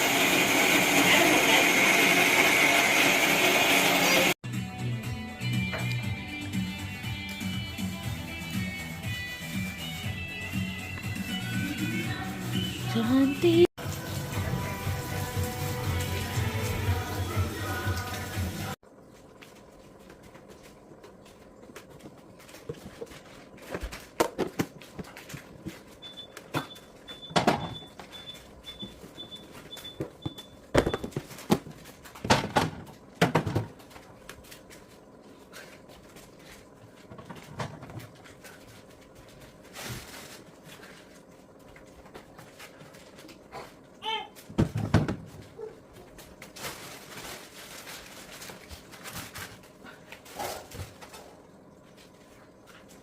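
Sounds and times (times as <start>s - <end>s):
refrigerator door alarm beeping: 26.0s - 31.2s
containers knocking in refrigerator: 30.1s - 33.8s, 44.5s - 45.4s.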